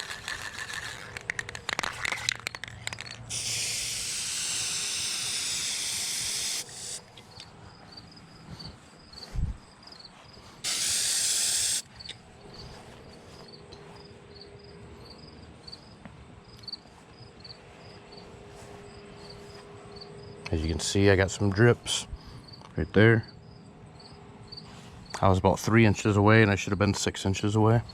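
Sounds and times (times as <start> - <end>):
spray paint can spraying: 0.0 - 7.1, 10.6 - 11.9
crickets chirping: 0.0 - 25.3.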